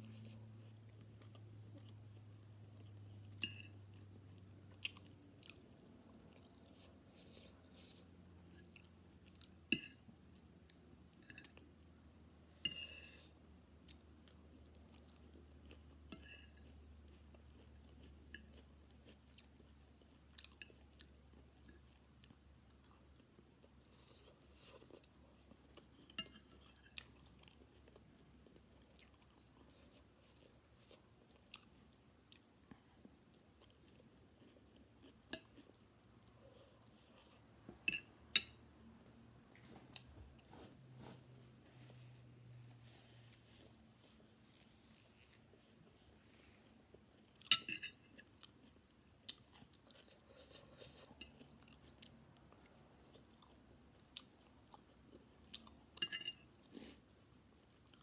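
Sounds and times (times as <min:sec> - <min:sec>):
chewing noodles: 0:43.6 - 0:57.0.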